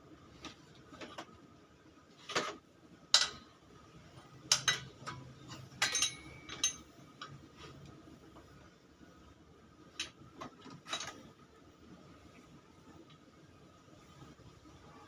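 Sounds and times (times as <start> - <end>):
metal tools clinking on engine parts: 4.5 - 6.9.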